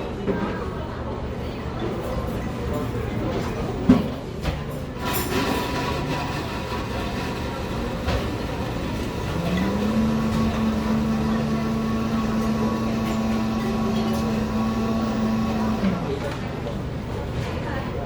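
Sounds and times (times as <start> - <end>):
machine hum: 5.8 - 16.7.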